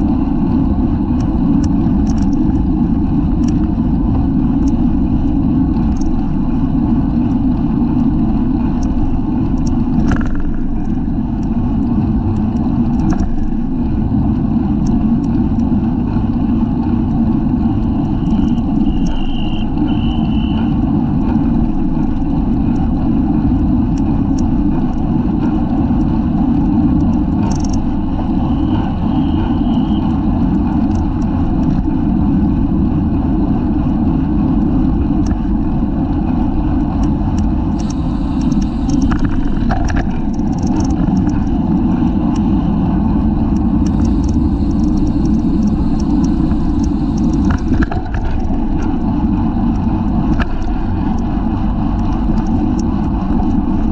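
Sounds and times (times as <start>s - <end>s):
wind buffeting microphone: 0.0s - 53.9s
light ticks: 1.2s - 2.7s, 3.4s - 3.8s, 5.8s - 6.2s, 8.8s - 13.7s, 26.0s - 28.1s, 30.0s - 31.9s, 36.8s - 42.6s, 43.5s - 49.1s, 49.7s - 51.3s, 51.9s - 53.9s.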